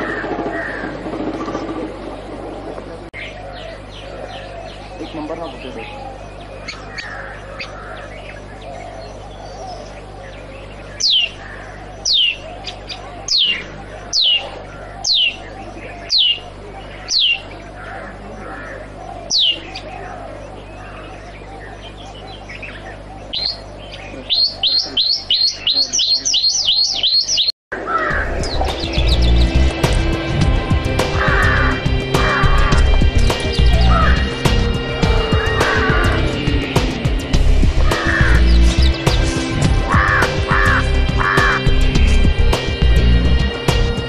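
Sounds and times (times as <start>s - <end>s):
bird whistling: 21.4s - 27.5s
music: 28.1s - 44.0s.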